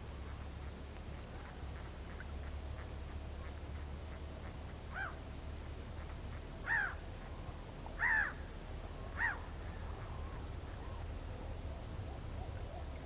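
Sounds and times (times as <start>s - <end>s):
swan trumpeting calls: 4.9s - 5.2s, 6.6s - 7.0s.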